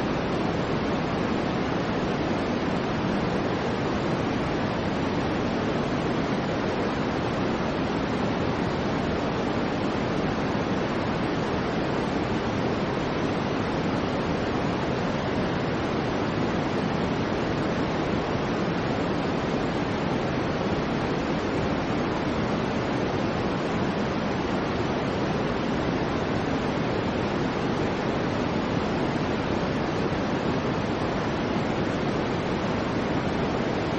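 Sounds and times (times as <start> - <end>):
soft white noise hiss: 0.0 - 33.9.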